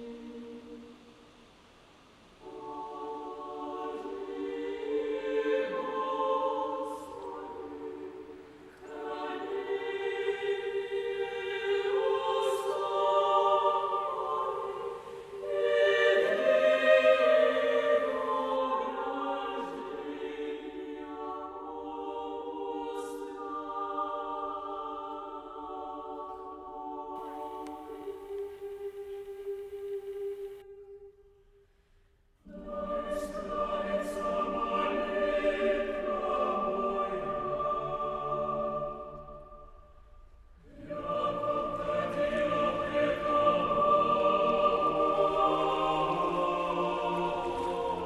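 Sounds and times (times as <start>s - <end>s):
choir singing sustained chords: 0.0s - 31.7s, 32.4s - 48.0s.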